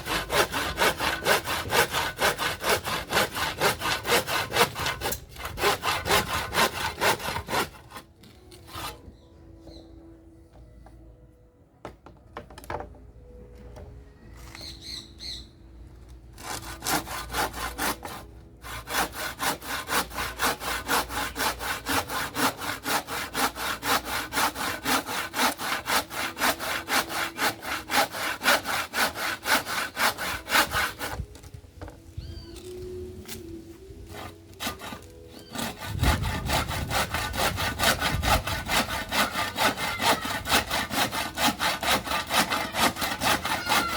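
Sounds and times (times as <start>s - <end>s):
hand saw cutting wood: 0.0s - 9.1s, 16.4s - 31.5s, 33.3s - 43.9s.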